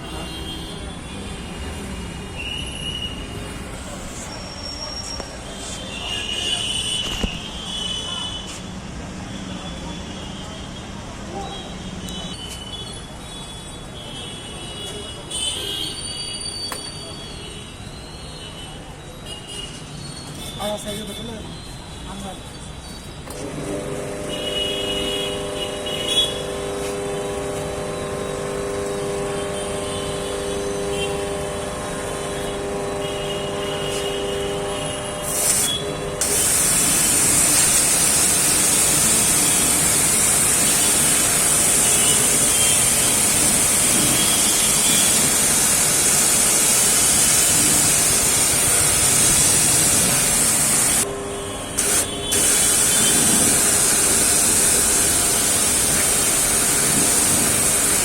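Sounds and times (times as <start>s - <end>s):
pressure washer motor hum: 23.2s - 58.0s
high-pressure water spray hiss: 24.0s - 51.0s, 51.6s - 58.0s.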